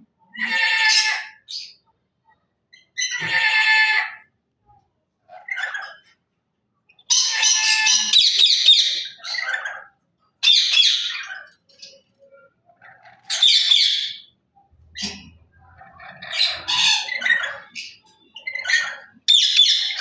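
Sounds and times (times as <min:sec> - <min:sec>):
parrot screeching: 0:00.4 - 0:01.7, 0:02.9 - 0:04.3, 0:07.1 - 0:11.6, 0:12.8 - 0:14.3, 0:15.8 - 0:20.0.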